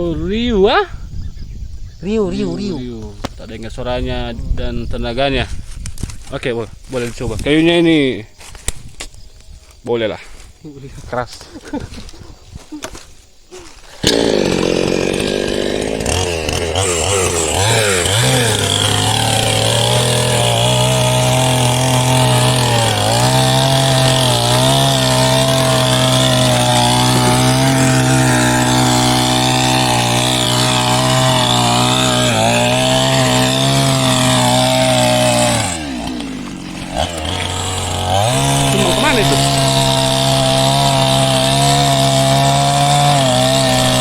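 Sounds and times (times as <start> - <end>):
chainsaw cutting hard wood: 14.0 - 44.0.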